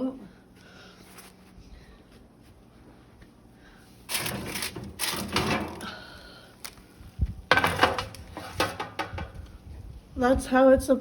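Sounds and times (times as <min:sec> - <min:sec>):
oven door opening: 0:04.1 - 0:05.8
metal pan clattering: 0:07.5 - 0:09.3.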